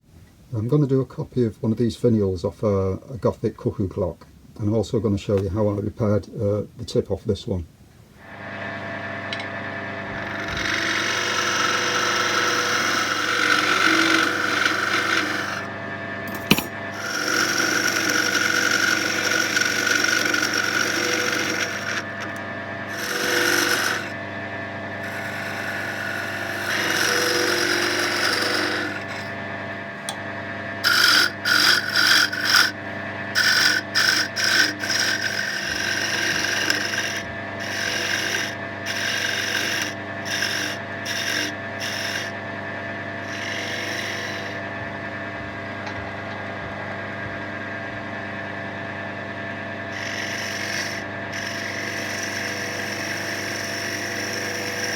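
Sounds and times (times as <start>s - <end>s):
wood lathe humming: 8.2s - 54.9s
turning tool cutting wood: 9.2s - 46.2s, 49.6s - 54.9s.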